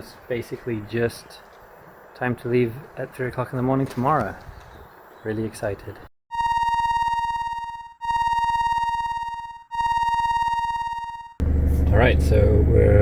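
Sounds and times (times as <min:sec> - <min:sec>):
high electronic tone: 0:06.3 - 0:12.2.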